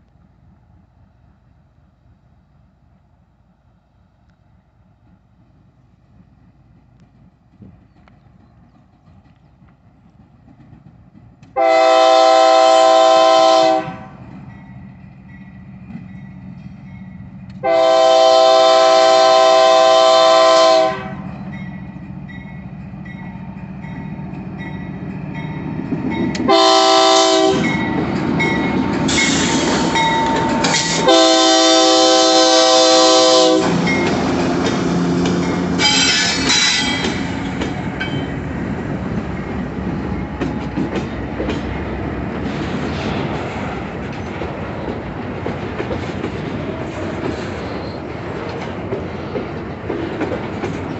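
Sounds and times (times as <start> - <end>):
train rumble: 0.0 - 50.9
train wheels clicking over rail joints: 4.2 - 11.7, 14.1 - 17.8, 21.2 - 50.9
locomotive air horn blasts: 11.6 - 14.2, 17.6 - 21.3, 26.4 - 27.8, 30.7 - 33.8, 35.8 - 37.2.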